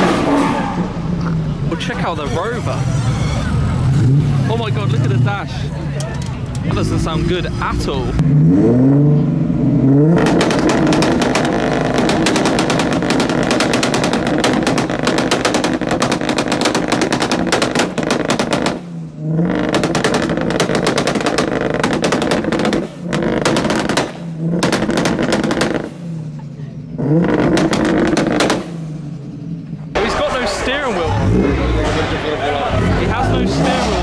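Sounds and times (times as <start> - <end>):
car engine revving: 0.0 - 34.0
exhaust crackling and popping: 9.5 - 34.0.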